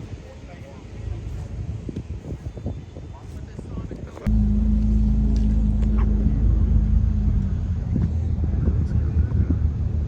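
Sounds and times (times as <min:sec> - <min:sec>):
car engine running: 0:04.3 - 0:10.0.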